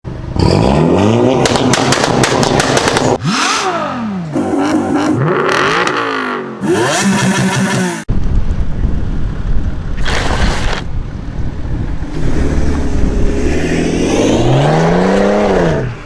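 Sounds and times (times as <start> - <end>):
car engines revving hard: 0.2 - 8.1, 12.0 - 16.0
exhaust crackles and pops: 1.4 - 3.2.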